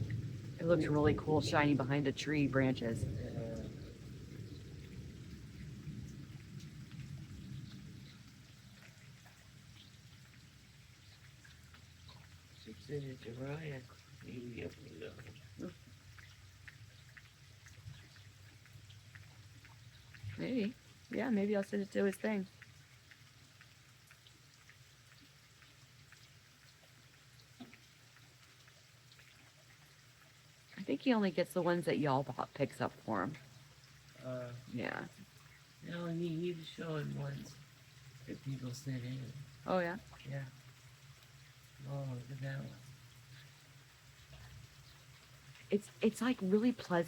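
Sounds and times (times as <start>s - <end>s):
thunder rumbling: 0.0s - 9.2s
rain falling: 0.0s - 47.0s
raindrops ticking: 0.0s - 47.0s.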